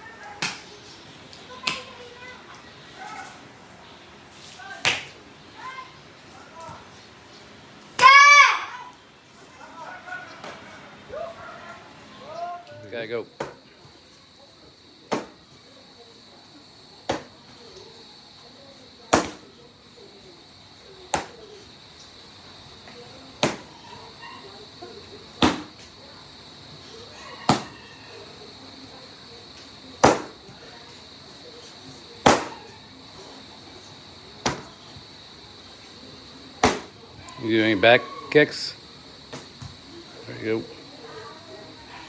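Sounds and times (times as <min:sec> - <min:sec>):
strikes slapping a target: 0:04.8 - 0:05.1, 0:15.1 - 0:15.4, 0:17.1 - 0:17.3, 0:19.1 - 0:19.4, 0:21.1 - 0:21.4, 0:23.4 - 0:23.7, 0:25.4 - 0:25.8, 0:27.5 - 0:27.8, 0:30.0 - 0:30.4, 0:32.2 - 0:32.6, 0:34.4 - 0:34.7, 0:36.6 - 0:36.9.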